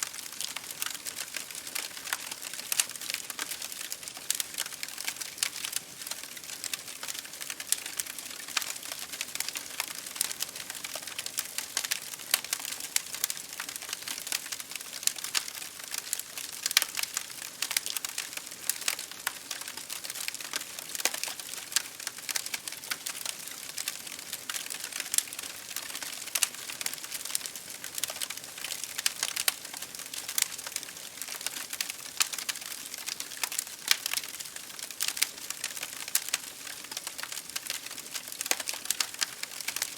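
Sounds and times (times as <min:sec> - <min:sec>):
rain pattering on a window: 0:00.0 - 0:39.9
wood fire crackling: 0:00.0 - 0:39.9.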